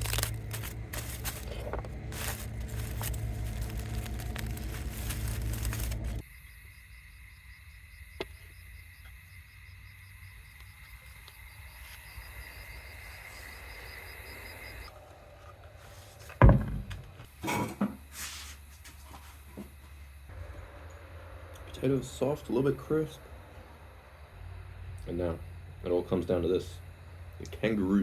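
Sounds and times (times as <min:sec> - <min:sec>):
insects trilling: 0:00.0 - 0:16.6, 0:17.2 - 0:28.0.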